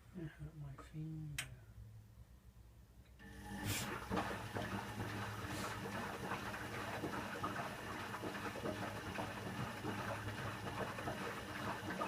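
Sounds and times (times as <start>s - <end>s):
washing machine humming: 3.2s - 12.0s
water splashing in drum: 3.6s - 12.0s.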